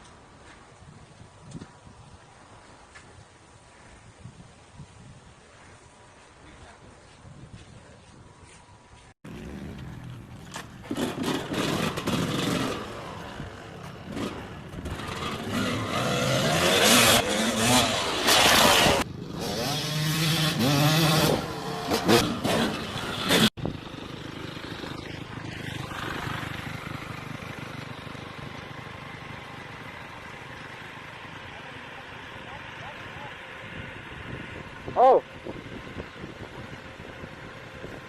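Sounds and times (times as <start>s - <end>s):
wind noise: 0.5s - 8.9s, 33.7s - 38.0s
motorcycle engine revving: 9.2s - 38.0s.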